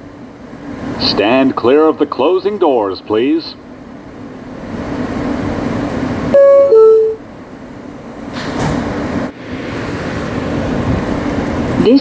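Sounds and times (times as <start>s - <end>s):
subway car interior hum: 0.0s - 12.0s
two-note door chime: 6.4s - 7.2s.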